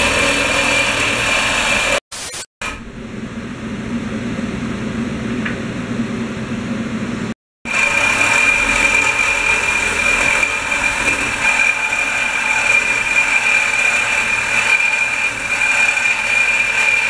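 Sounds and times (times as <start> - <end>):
power saw cutting wood: 0.0 - 2.8, 7.7 - 17.0.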